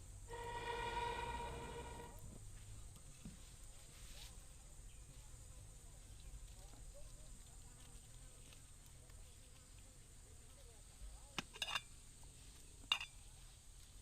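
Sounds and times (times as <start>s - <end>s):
high-pitched insect drone: 0.3s - 2.2s.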